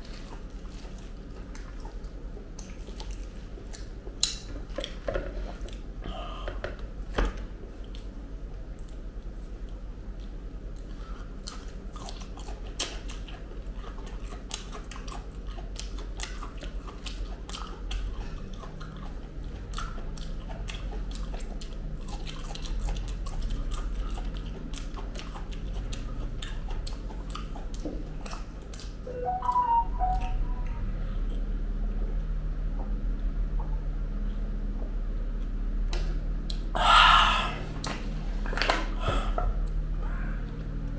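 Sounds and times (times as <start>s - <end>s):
person chewing fruit: 0.0s - 40.9s
brief pitched sound: 29.1s - 31.0s.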